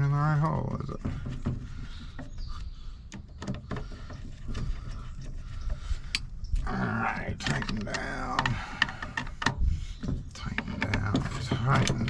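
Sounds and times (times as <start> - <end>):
metal lock parts clicking: 7.2 - 9.6, 10.5 - 12.0.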